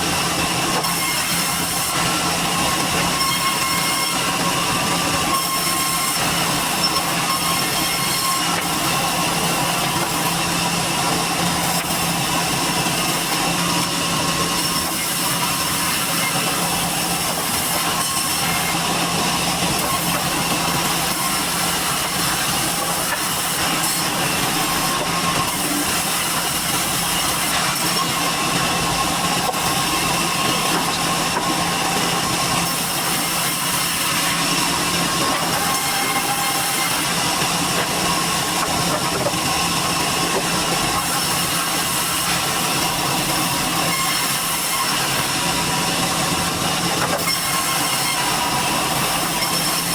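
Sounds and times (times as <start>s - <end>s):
sawmill machinery running: 0.0s - 49.9s.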